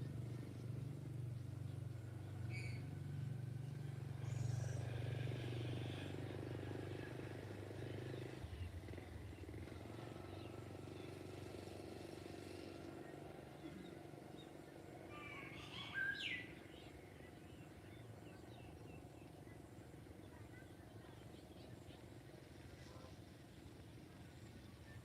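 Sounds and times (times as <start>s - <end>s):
distant bird chirps: 1.3s - 6.4s, 13.4s - 22.3s.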